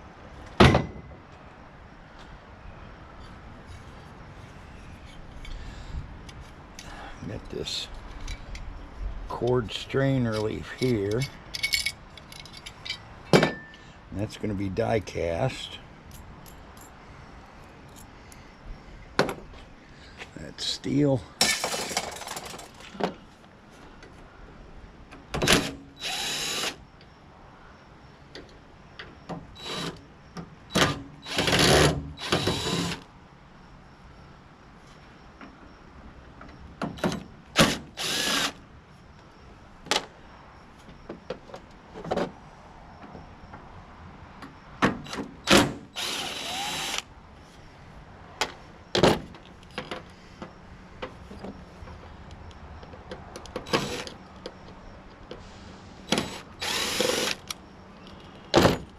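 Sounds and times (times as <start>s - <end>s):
power drill-driver whirring: 26.0s - 26.8s, 38.0s - 38.6s, 46.0s - 47.0s, 53.7s - 54.1s, 56.1s - 57.6s.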